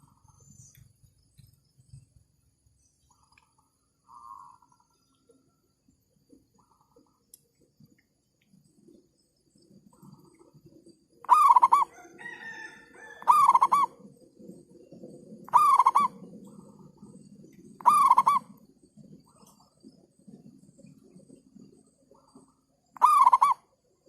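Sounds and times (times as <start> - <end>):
dove cooing: 11.2 - 17.0, 17.8 - 19.2, 23.0 - 23.6.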